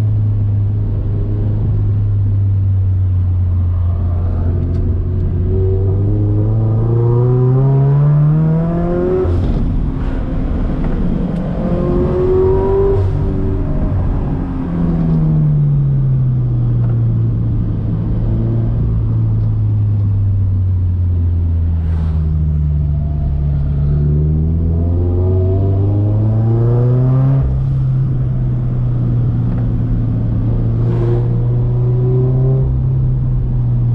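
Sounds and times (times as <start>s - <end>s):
car engine revving: 0.0s - 16.0s, 16.6s - 33.9s.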